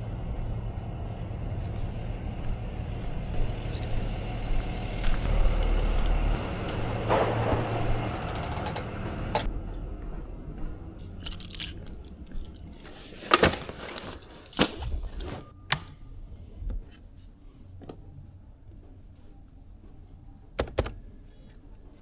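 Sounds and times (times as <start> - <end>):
vehicle engine running: 0.0 - 11.0
knocks and metallic clinks: 5.2 - 9.5, 11.0 - 15.4.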